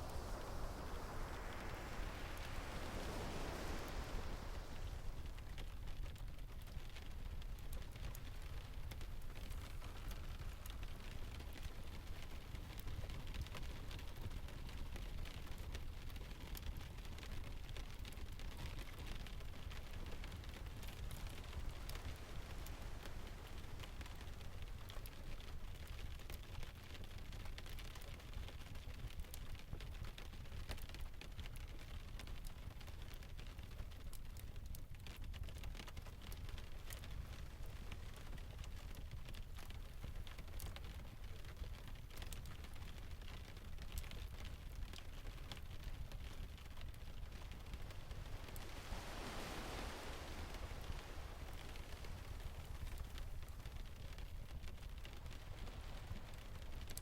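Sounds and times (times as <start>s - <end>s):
rain hiss: 0.0s - 14.4s, 16.6s - 26.2s, 36.3s - 57.0s
surf rumble: 0.0s - 26.0s, 36.0s - 57.0s
sharp ticks and pops: 5.3s - 49.8s.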